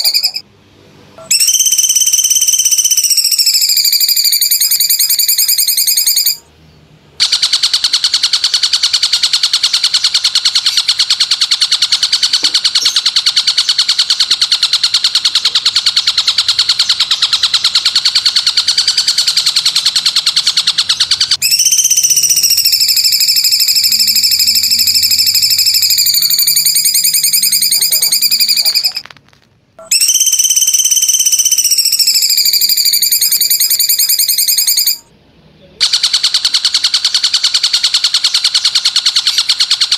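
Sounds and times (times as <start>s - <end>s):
bird fast high trill: 0.0s - 0.4s, 1.2s - 6.5s, 7.2s - 29.0s, 29.8s - 35.1s
bird high whistled notes: 0.0s - 0.4s, 1.2s - 6.4s, 15.3s - 29.0s, 29.8s - 35.0s.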